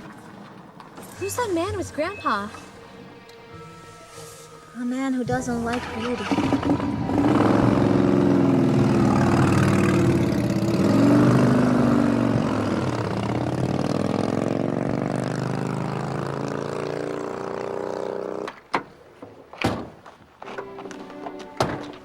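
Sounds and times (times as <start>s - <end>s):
car engine revving: 5.4s - 18.5s.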